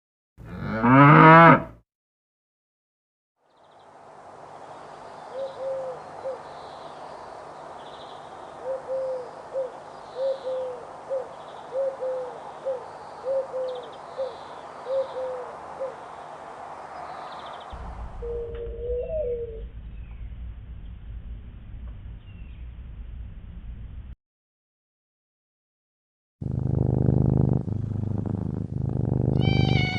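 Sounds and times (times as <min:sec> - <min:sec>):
small birds chirping: 0:03.4 - 0:20.3, 0:29.4 - 0:29.9
dove cooing: 0:05.3 - 0:06.4, 0:08.6 - 0:16.0, 0:18.2 - 0:19.6.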